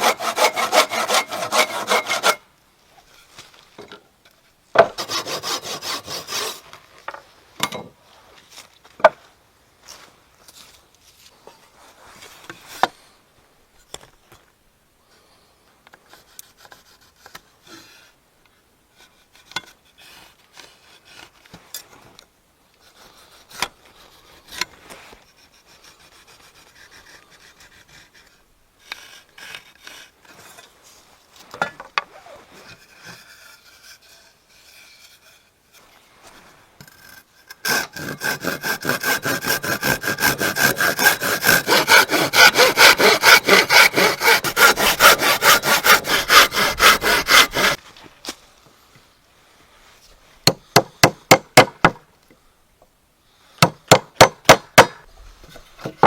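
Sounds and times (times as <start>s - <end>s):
hand-saw strokes: 0.0s - 2.4s, 5.0s - 6.7s, 25.3s - 30.7s, 36.9s - 47.8s
scraping and rubbing on wood: 0.0s - 2.4s, 32.0s - 47.8s.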